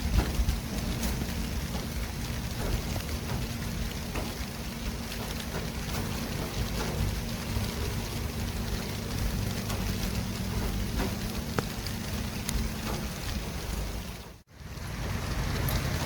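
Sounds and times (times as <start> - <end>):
traffic tyre and engine noise: 0.0 - 16.0.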